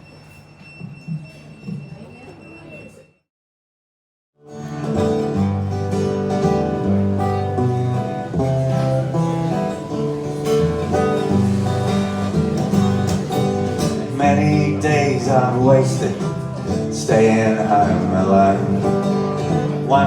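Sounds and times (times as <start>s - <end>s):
acoustic guitar chords: 4.4s - 20.0s.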